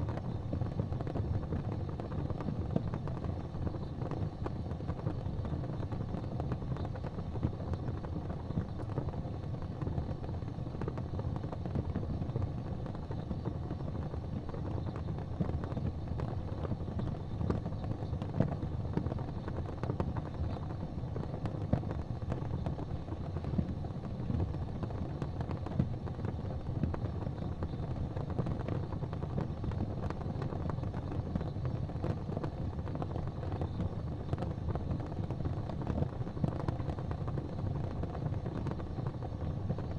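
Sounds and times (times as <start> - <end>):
fire popping and crackling: 0.0 - 39.9
low rumble of flames: 0.0 - 39.9.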